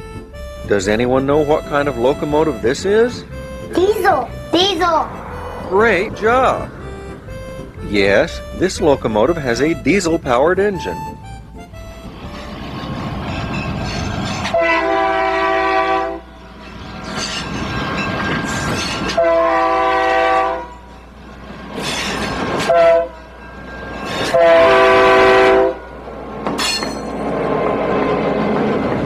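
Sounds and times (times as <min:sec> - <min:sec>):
rumble of moving train: 0:00.0 - 0:29.0
locomotive air horn blasts: 0:14.4 - 0:16.4, 0:19.1 - 0:20.9, 0:22.6 - 0:23.2, 0:24.2 - 0:25.9.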